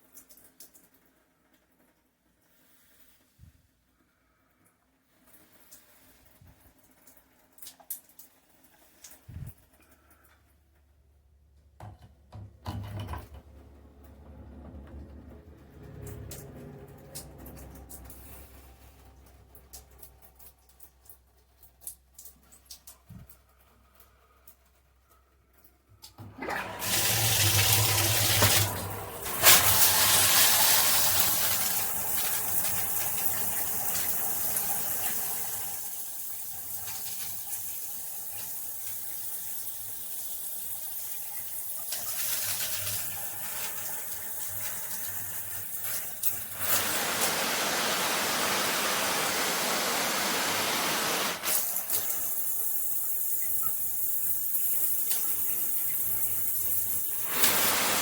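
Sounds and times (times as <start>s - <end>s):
shower spraying water: 2.5s - 3.4s, 15.8s - 23.4s, 26.3s - 58.0s.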